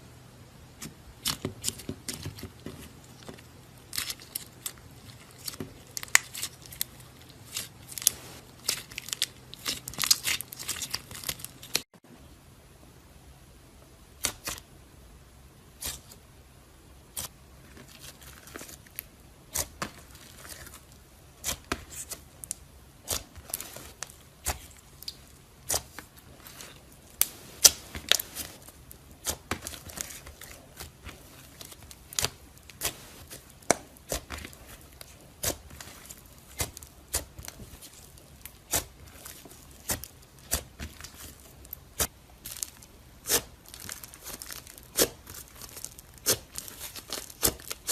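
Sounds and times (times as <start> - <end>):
faint slime crackling: 0.8 - 11.9, 17.1 - 47.9
slime popping: 21.4 - 47.9.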